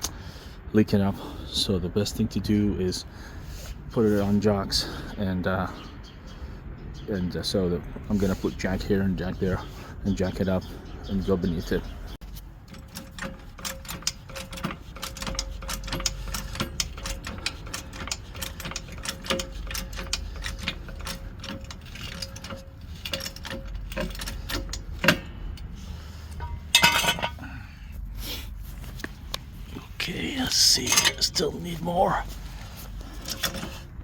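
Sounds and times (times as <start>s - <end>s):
metallic clatter: 12.2s - 27.6s, 30.5s - 34.0s.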